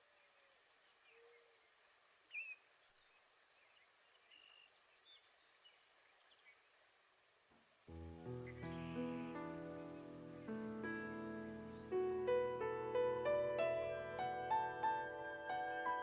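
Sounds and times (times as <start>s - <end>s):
faint bird chirps: 0.0s - 7.1s
low steady hiss: 0.0s - 16.0s.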